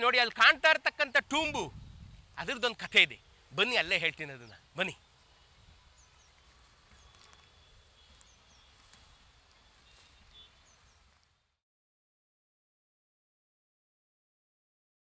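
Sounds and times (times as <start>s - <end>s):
small birds chirping: 1.6s - 11.5s.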